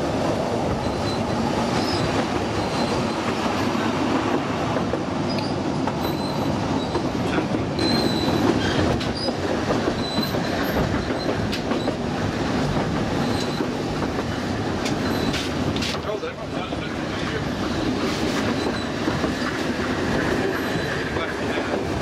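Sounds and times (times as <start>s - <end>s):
train wheels rumbling on rail: 0.0s - 22.0s
wheels squealing: 0.8s - 3.7s, 5.3s - 12.0s, 14.9s - 15.6s.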